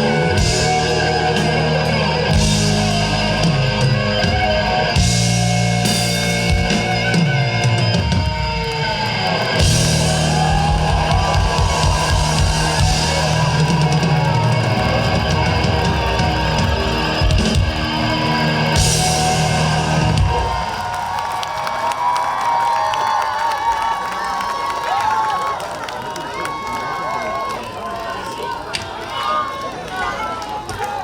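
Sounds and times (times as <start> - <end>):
bass guitar: 0.0 - 20.8
electric guitar: 0.0 - 21.0
drum kit: 0.0 - 21.2.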